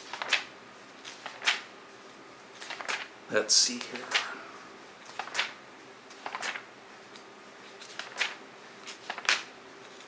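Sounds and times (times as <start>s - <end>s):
magazine pages turning: 0.0s - 1.7s, 2.5s - 3.1s, 5.0s - 6.7s, 7.6s - 10.0s.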